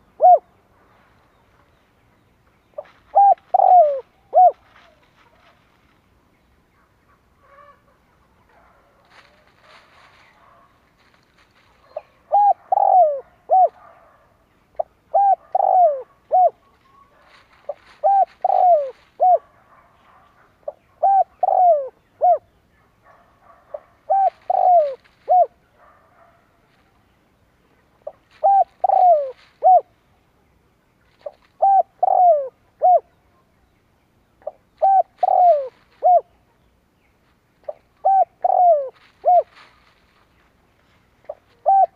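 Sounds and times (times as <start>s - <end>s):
dove cooing: 0.0s - 0.6s, 2.8s - 5.7s, 7.1s - 14.2s, 14.8s - 22.5s, 23.1s - 26.4s, 28.0s - 30.0s, 31.1s - 33.4s, 34.4s - 36.6s, 37.6s - 40.2s, 41.2s - 41.9s
faint birds chirping: 0.0s - 41.9s.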